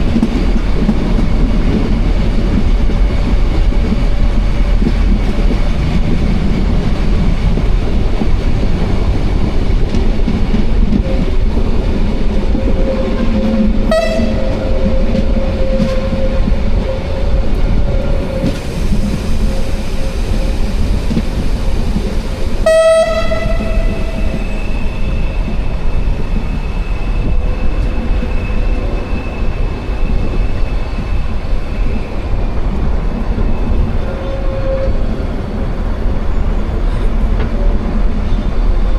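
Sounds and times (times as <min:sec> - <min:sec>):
train rumbling: 0:00.0 - 0:38.9
train horn blasts: 0:12.7 - 0:16.6, 0:22.6 - 0:24.7.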